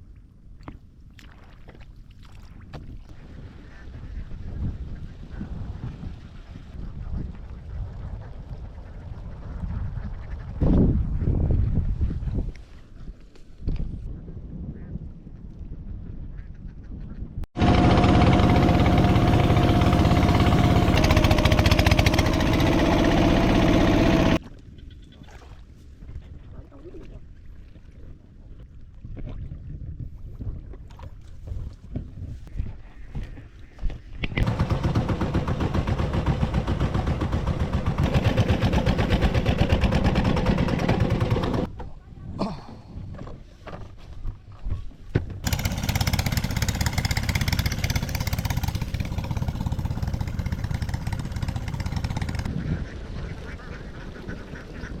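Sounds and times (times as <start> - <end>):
engine running steadily: 17.6 - 24.4, 34.4 - 41.7, 45.4 - 52.5
ducks quacking: 52.2 - 55.0.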